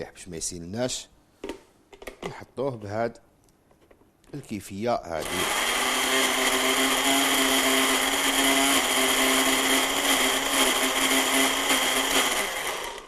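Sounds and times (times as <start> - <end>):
blender motor running: 5.2 - 13.0.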